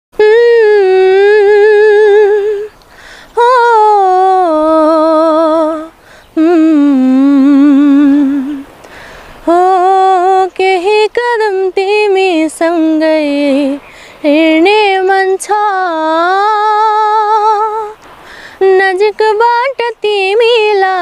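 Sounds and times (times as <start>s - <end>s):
young woman singing unaccompanied: 0.2s - 21.0s
singer breathing: 2.9s - 3.4s, 6.0s - 6.4s, 8.8s - 9.4s, 13.8s - 14.2s, 18.0s - 18.6s.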